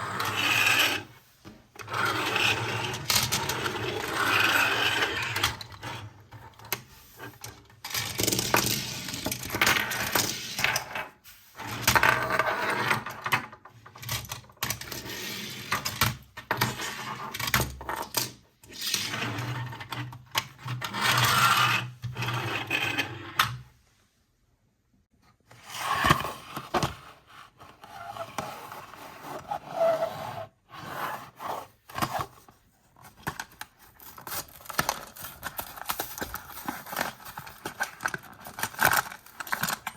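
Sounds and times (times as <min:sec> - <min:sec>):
plastic toys clattering: 0:32.0 - 0:39.9.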